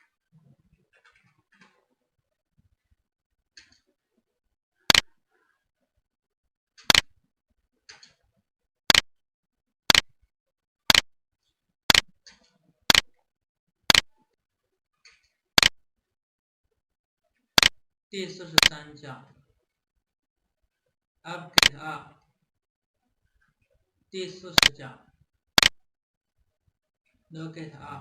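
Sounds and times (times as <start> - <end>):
sharp loud clicks: 4.9 - 5.2, 6.8 - 7.2, 8.9 - 9.2, 9.9 - 10.2, 10.9 - 11.1, 11.9 - 13.2, 13.9 - 14.1, 15.2 - 15.8, 17.6 - 17.8, 18.6 - 18.8, 21.5 - 21.8, 24.5 - 24.8, 25.6 - 25.8.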